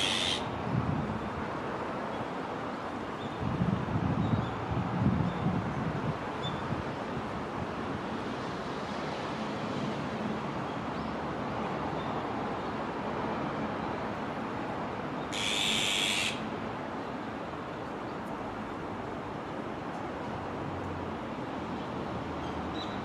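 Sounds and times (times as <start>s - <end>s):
magpie harsh raspy call: 0.0s - 0.5s, 15.3s - 16.4s.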